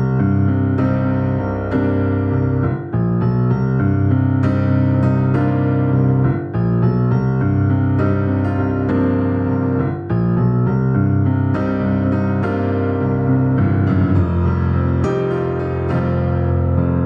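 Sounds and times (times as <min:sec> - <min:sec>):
electric piano chords: 0:00.0 - 0:17.0.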